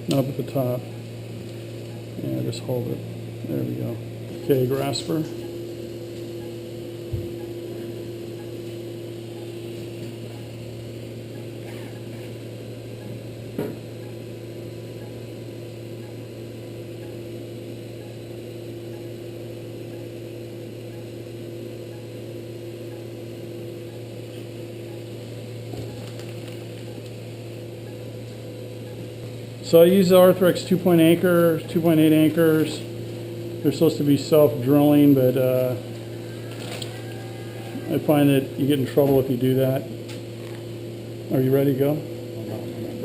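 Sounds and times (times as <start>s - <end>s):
low electrical hum: 0.0s - 43.0s.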